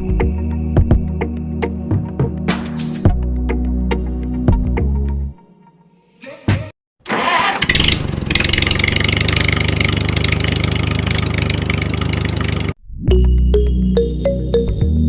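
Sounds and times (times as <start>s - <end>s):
engine running with rattle: 7.6s - 12.8s.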